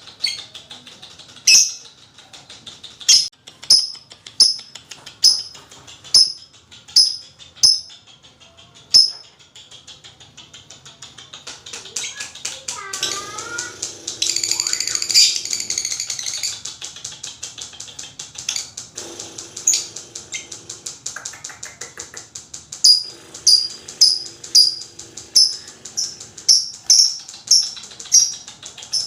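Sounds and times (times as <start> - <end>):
lovebird chattering trill: 1.3 - 1.9, 2.7 - 10.3, 11.9 - 16.8, 18.5 - 22.2, 22.8 - 29.0.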